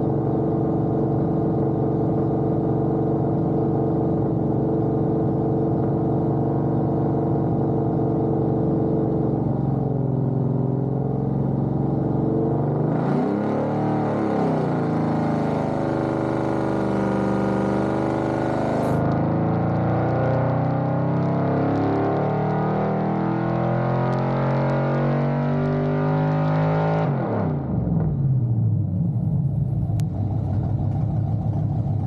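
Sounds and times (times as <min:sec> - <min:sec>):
car engine running on dyno: 0:06.7 - 0:28.8.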